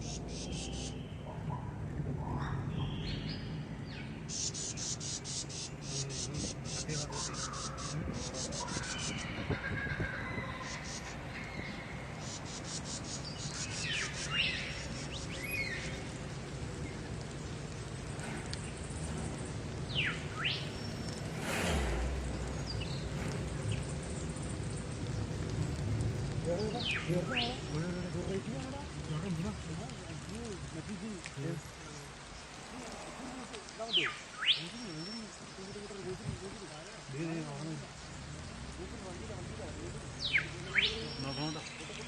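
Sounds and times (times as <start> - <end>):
bird calling: 0.0 - 36.2, 40.2 - 42.0
insect buzzing in rapid pulses: 12.0 - 25.9
rushing swell: 17.9 - 27.8.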